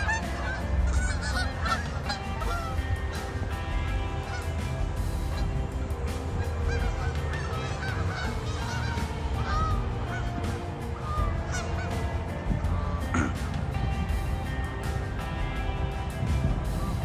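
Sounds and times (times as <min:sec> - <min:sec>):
geese honking: 0:00.0 - 0:03.4, 0:05.3 - 0:13.3
background music: 0:00.0 - 0:17.0.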